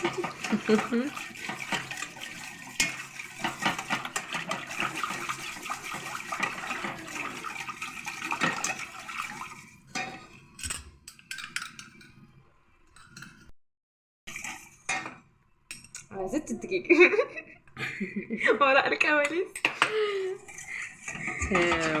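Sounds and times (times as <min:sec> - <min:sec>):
sauce sloshing while stirred: 0:00.0 - 0:10.0
spoon clinking against pot: 0:10.0 - 0:12.2.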